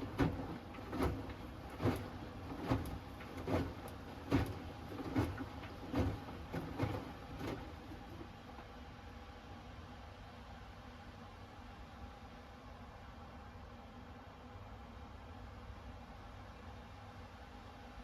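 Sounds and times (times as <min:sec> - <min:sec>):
washing machine tumbling: 0:00.0 - 0:08.8.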